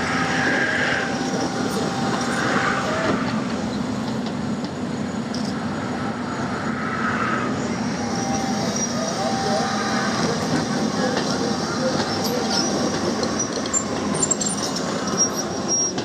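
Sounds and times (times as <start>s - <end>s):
excavator diesel engine running: 0.0s - 16.0s
high squealing: 6.6s - 16.0s.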